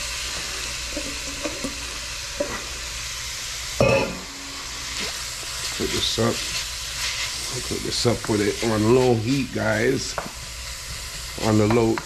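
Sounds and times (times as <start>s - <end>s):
vegetables sizzling in a pan: 0.0s - 12.0s.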